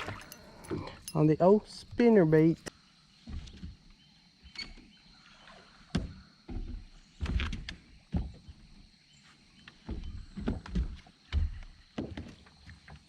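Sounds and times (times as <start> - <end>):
quiet water and air: 0.0 - 13.0
knocks and bumps in boat: 3.2 - 4.9, 5.8 - 8.9, 9.5 - 13.0.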